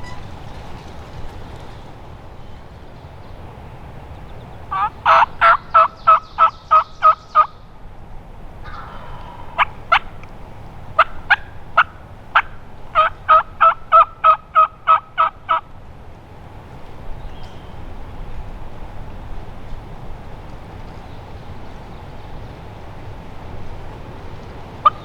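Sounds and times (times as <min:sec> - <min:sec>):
turkey yelping: 0:04.7 - 0:07.5, 0:08.6 - 0:10.3, 0:10.9 - 0:15.6.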